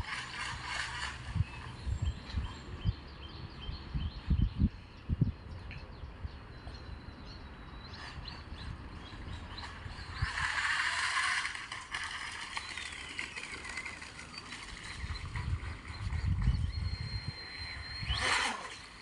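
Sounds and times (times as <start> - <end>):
rush of spray and motor: 0.0 - 2.4, 9.0 - 19.0
faint motor whine: 0.0 - 19.0.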